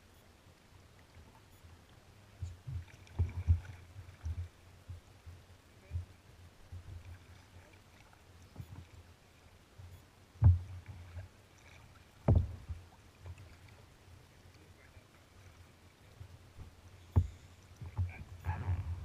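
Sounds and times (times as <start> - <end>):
water sloshing against kayak hull: 1.0 - 19.0.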